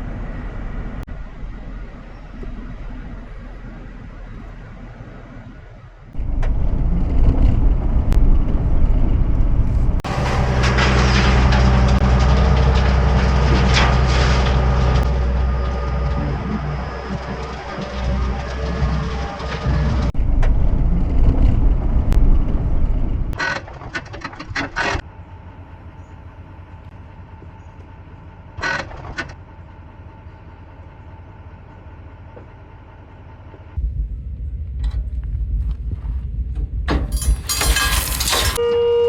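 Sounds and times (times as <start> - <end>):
trailer rattling and clanking: 0.0 - 38.6
truck engine rumbling: 0.0 - 39.0.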